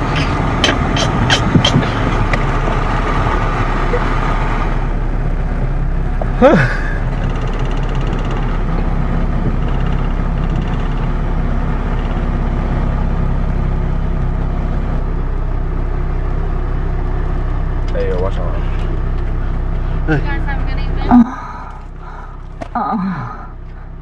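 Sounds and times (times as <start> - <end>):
car engine running: 0.0 - 24.0.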